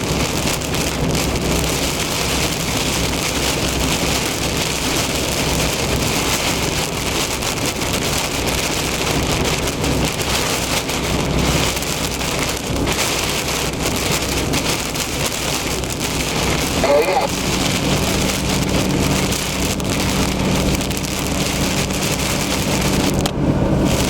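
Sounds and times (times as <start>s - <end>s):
heavy rain on a car: 0.0s - 24.0s
tyre and road noise: 0.0s - 24.0s.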